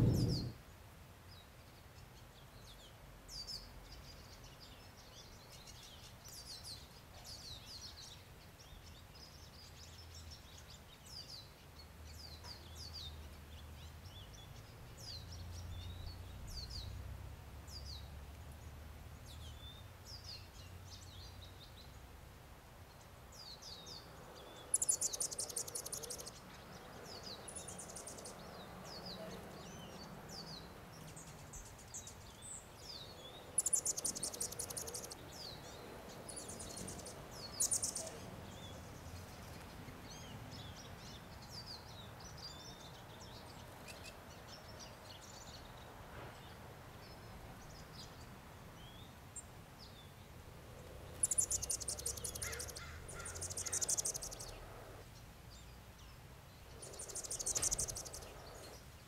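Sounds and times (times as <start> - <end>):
bird chattering burst: 0.0 - 0.6, 56.9 - 58.3
faint low rumble: 0.0 - 0.6
small birds chirping: 0.0 - 59.0.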